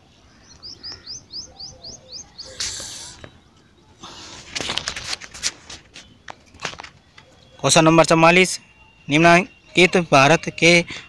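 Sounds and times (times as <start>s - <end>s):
small bird chirping: 0.3s - 4.0s
brief hiss: 2.5s - 3.2s
clicks and rustles: 4.3s - 7.5s.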